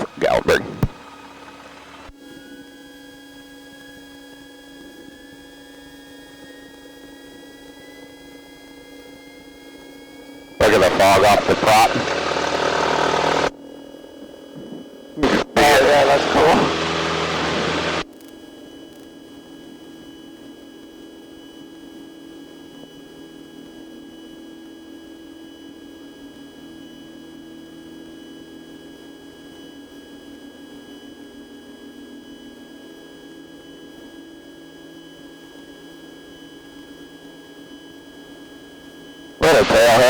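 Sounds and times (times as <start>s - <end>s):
high whine tones: 0.0s - 2.1s, 10.6s - 13.5s, 14.5s - 18.0s
light aircraft engine drone: 10.6s - 19.0s, 39.4s - 40.0s.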